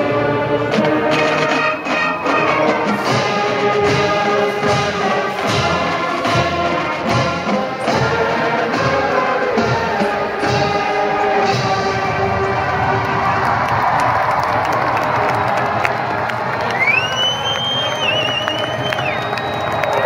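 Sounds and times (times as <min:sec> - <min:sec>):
marching band brass chords: 0:00.0 - 0:20.0
drum strikes: 0:02.5 - 0:13.9.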